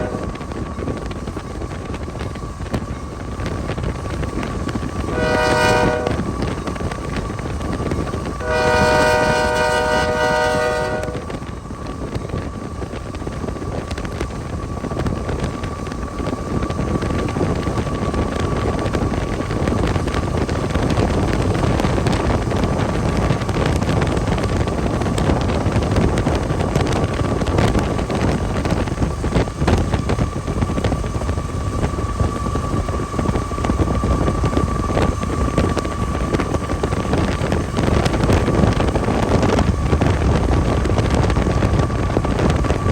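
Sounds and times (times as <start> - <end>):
train horn blast: 0.0 - 0.4, 5.1 - 6.4, 8.3 - 11.5
train and vehicle noise: 0.0 - 42.9
wind buffeting microphone: 0.0 - 42.9.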